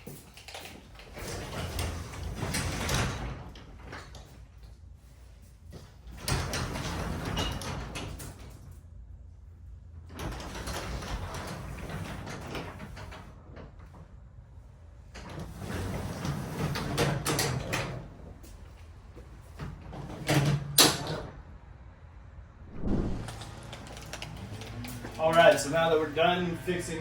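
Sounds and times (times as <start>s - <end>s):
garage door rollers rumbling: 0.0s - 8.9s, 10.0s - 21.5s.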